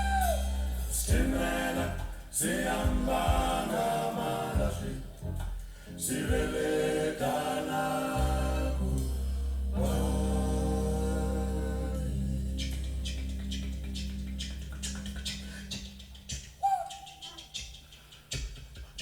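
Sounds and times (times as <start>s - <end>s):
voices singing with pitch bends: 0.0s - 19.0s
sustained low bass note: 8.2s - 16.2s.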